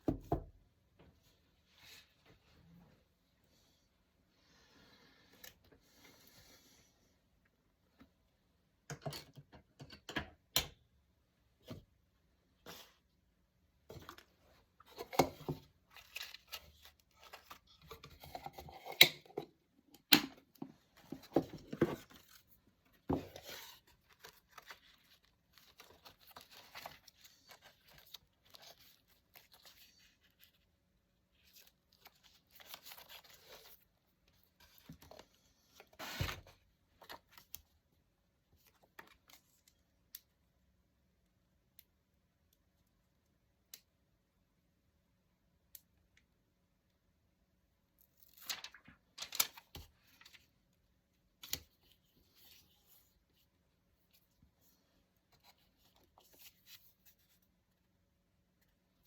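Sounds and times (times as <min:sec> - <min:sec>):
paper rustling and tearing: 0:48.2 - 0:50.4.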